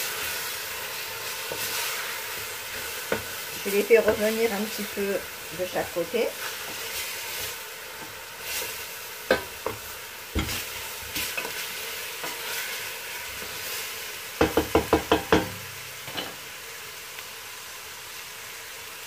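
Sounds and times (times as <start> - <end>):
chicken sizzling in oil: 0.0 - 19.0
spatula knocking on pot: 14.4 - 16.2.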